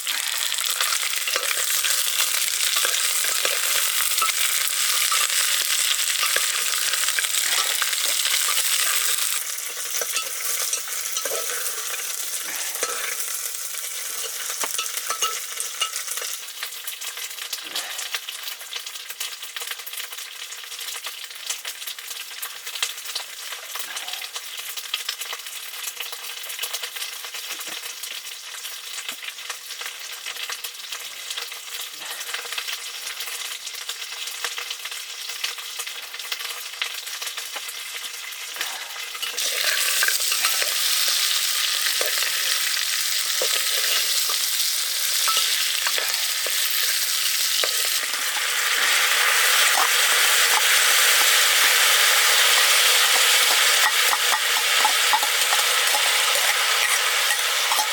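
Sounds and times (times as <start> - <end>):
curry sizzling in a pan: 0.0 - 57.9
stirring knocks: 49.6 - 57.9.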